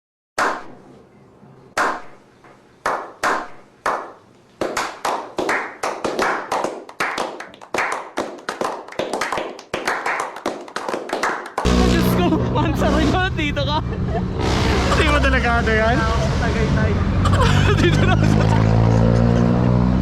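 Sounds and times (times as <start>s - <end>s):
hands clapping: 2.8s - 11.7s.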